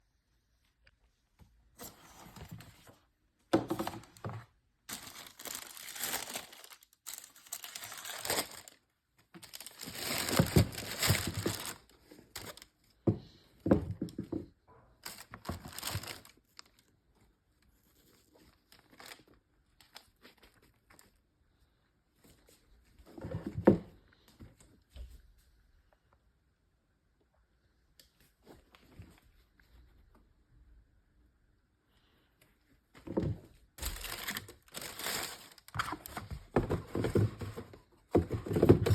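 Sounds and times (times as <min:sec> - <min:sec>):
packaging paper crinkling: 0:04.9 - 0:08.8, 0:09.4 - 0:12.7, 0:15.0 - 0:16.8, 0:33.8 - 0:37.3.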